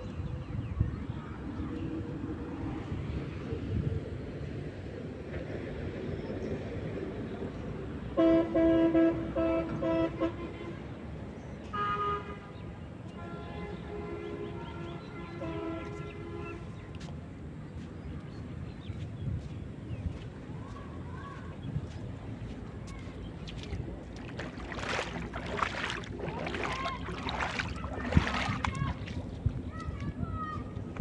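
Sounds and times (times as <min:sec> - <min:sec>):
horn blasts: 0:08.2 - 0:11.0, 0:11.7 - 0:12.6, 0:13.2 - 0:16.8
steady low rumble: 0:16.7 - 0:31.0.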